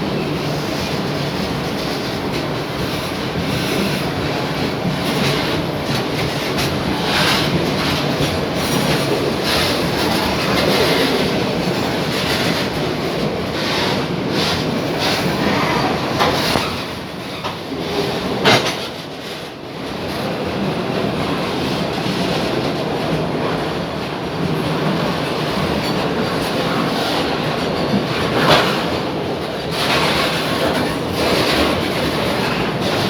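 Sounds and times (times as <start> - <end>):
freight train wheels rumbling on rail: 0.0 - 33.0
wheels clacking over rail joints: 23.5 - 33.0.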